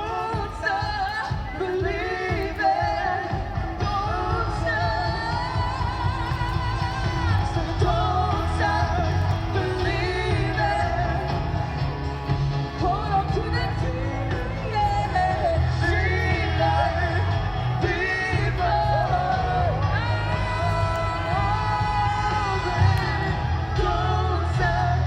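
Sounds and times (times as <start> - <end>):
crowd yelling: 0.0 - 25.0
pop-rock music with singer: 0.0 - 25.0.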